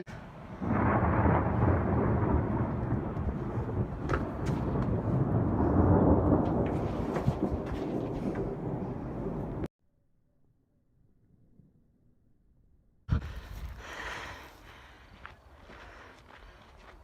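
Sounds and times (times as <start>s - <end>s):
rolling thunder: 0.3s - 9.7s.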